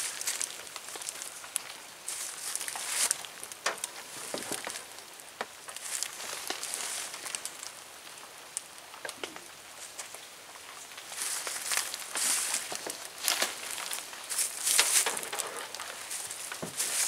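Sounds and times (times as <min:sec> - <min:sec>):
rain hissing: 0:00.0 - 0:17.0
tent fabric rustling: 0:11.2 - 0:17.0.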